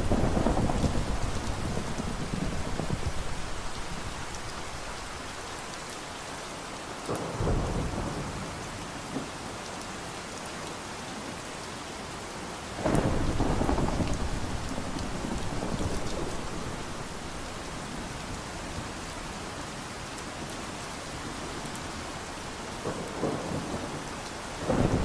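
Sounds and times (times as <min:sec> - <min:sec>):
thunder rolling: 0:00.0 - 0:05.4, 0:12.8 - 0:17.7, 0:24.6 - 0:25.0
rain falling: 0:00.0 - 0:25.0.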